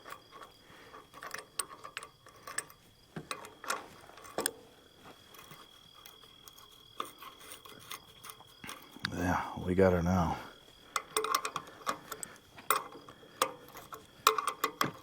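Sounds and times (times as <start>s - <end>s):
wrench clicking on bolt: 11.0s - 15.0s.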